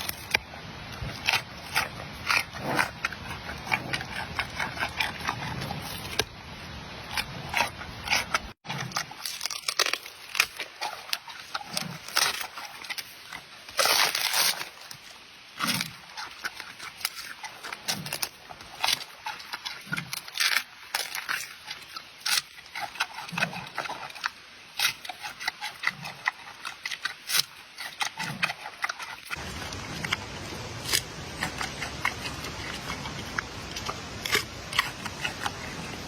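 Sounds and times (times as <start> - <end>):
panda chewing and crunching: 0.0 - 36.0
rustle: 0.0 - 36.0.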